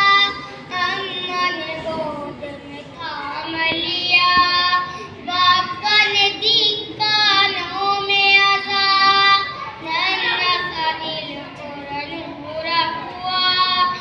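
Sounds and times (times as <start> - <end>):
child singing: 0.0 - 14.0.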